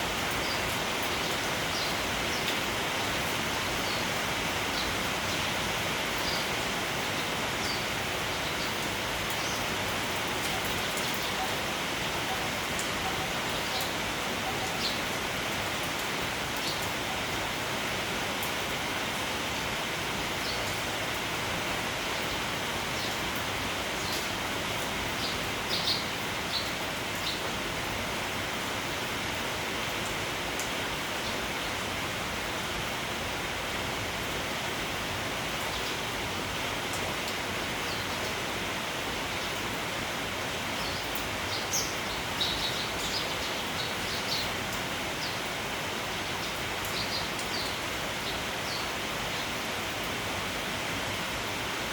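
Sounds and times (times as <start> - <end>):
steady rain hiss: 0.0 - 51.9
sparrows chirping: 25.2 - 27.5, 40.8 - 44.6, 46.2 - 49.5.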